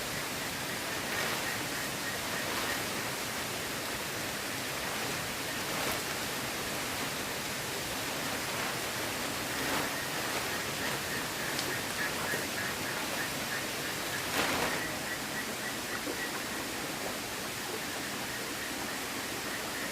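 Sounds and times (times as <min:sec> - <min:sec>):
water rushing: 0:00.0 - 0:19.9.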